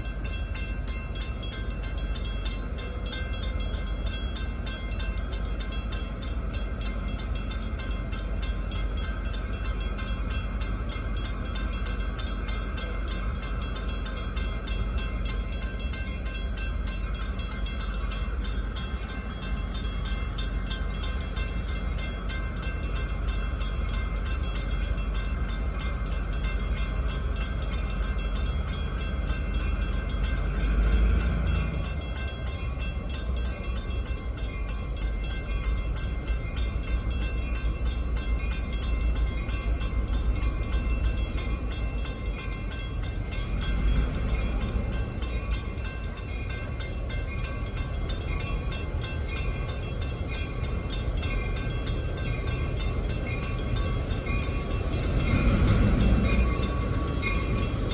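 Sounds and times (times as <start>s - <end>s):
freight train rumbling past: 0.0s - 57.9s.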